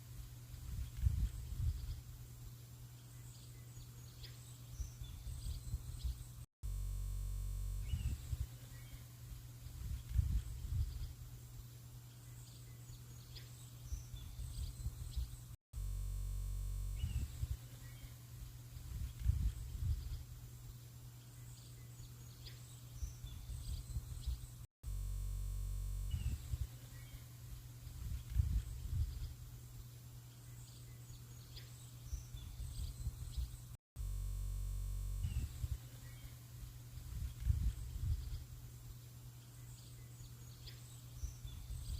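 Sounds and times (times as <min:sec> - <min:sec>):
steady low buzz: 0:00.0 - 0:41.9
bird chirps: 0:07.8 - 0:15.6, 0:16.9 - 0:20.4, 0:26.1 - 0:33.8, 0:35.2 - 0:38.6.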